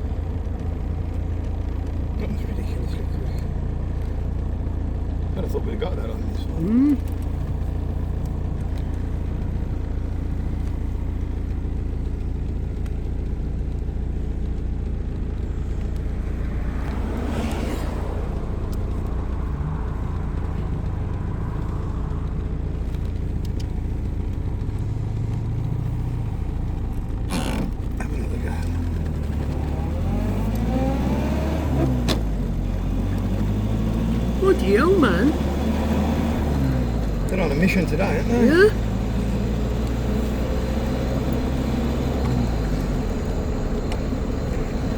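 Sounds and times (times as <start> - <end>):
car engine and road noise: 0.0 - 44.9.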